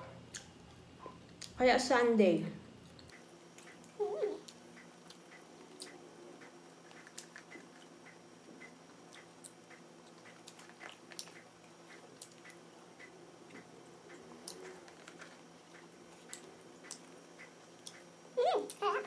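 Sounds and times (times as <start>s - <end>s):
chewing french fries: 9.1s - 18.1s
wet mouth clicks: 16.3s - 18.0s.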